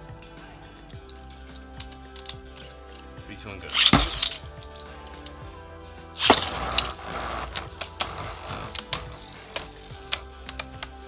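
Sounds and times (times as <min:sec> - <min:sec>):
tops scraping and rattling: 0:00.7 - 0:05.4, 0:06.2 - 0:11.0
spinning tops clicking: 0:00.8 - 0:05.4, 0:06.2 - 0:11.0
spinning tops crashing together: 0:03.7 - 0:05.4, 0:06.2 - 0:11.0.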